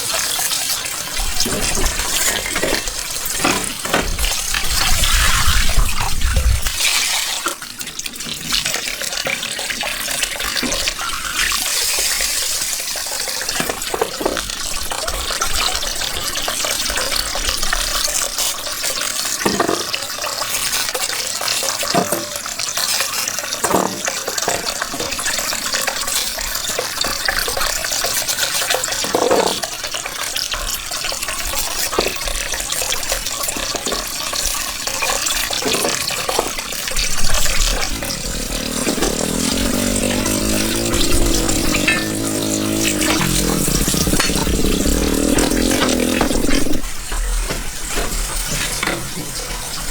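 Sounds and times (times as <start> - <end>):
running water: 33.4 - 49.9.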